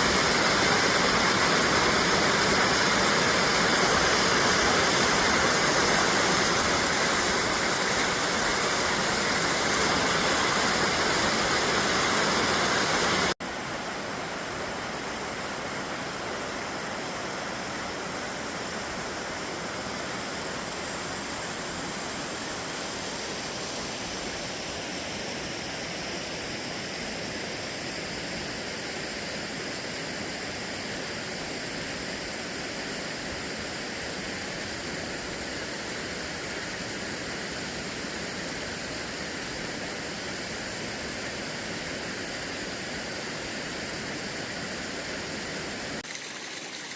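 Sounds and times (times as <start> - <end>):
steady rushing noise: 0.0 - 13.4.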